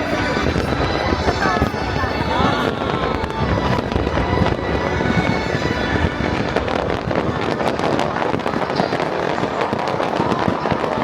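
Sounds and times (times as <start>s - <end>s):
music playing: 0.0s - 7.8s
firework crackling: 0.0s - 11.0s.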